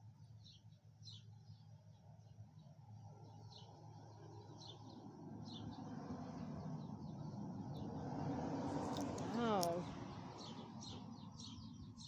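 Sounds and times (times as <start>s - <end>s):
bird chirping: 0.2s - 12.0s.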